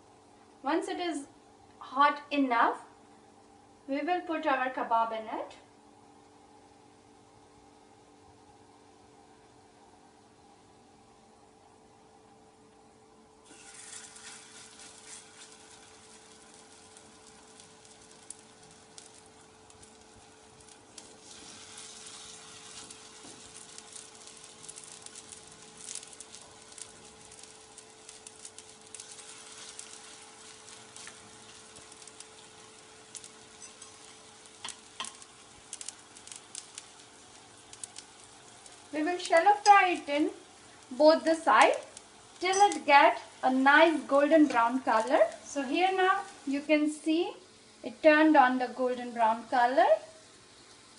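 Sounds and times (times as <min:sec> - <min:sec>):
faint steady hum: 0:00.0 - 0:50.9
kebabs sizzling in oil: 0:13.4 - 0:50.9.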